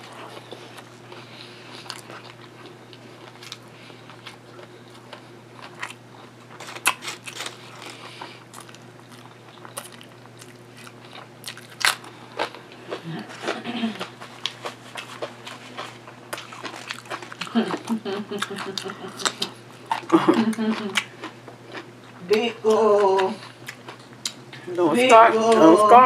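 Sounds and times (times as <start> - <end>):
person chewing sandwich: 0.0 - 22.3, 23.1 - 24.6
potato chips crunching: 1.7 - 21.9.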